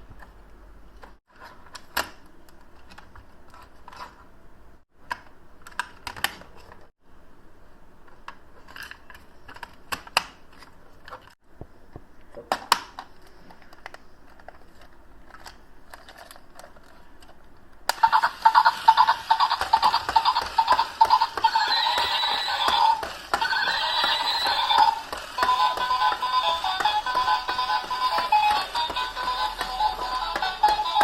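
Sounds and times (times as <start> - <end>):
toy being handled clicks: 17.9 - 31.0.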